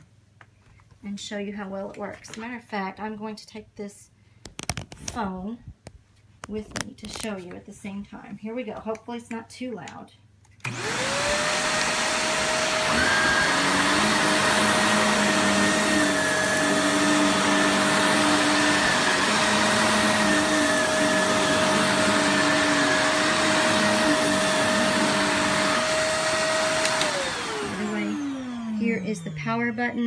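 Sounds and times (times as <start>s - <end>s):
vacuum cleaner running: 10.6s - 30.0s
vacuum motor winding down: 10.6s - 30.0s.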